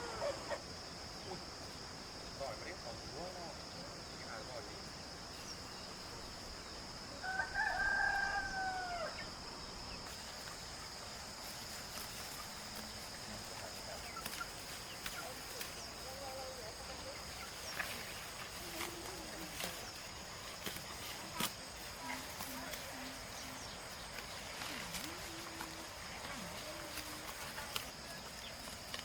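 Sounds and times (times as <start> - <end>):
rooster crowing: 7.2 - 9.4.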